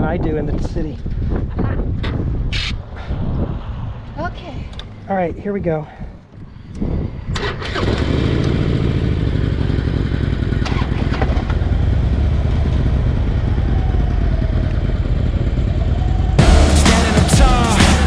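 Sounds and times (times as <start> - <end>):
motorcycle engine rumble: 8.2 - 18.0.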